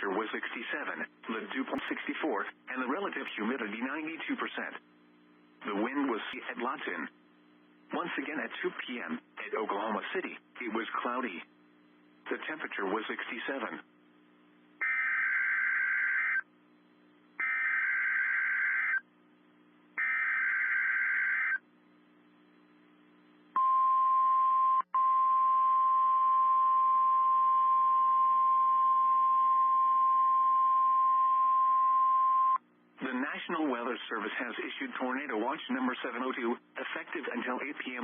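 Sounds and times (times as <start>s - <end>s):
steady warning alarm tone: 14.8s - 16.5s, 17.4s - 19.0s, 20.0s - 21.6s.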